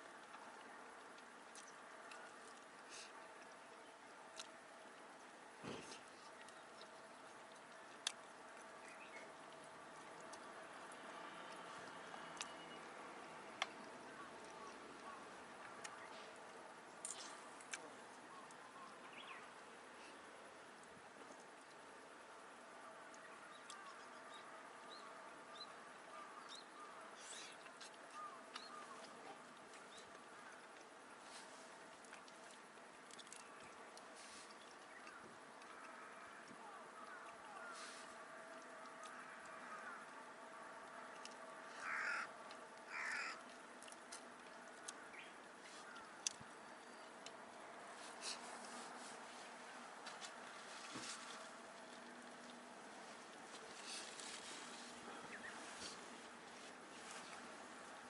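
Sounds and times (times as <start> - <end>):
crow cawing: 39.1 - 40.1, 41.8 - 42.3, 42.9 - 43.4.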